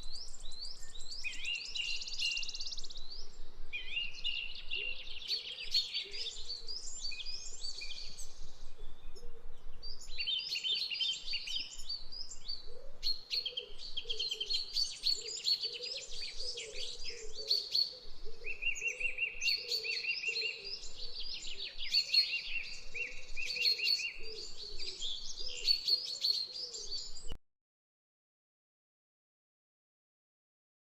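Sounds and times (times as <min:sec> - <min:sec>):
small birds chirping: 0:00.0 - 0:27.4.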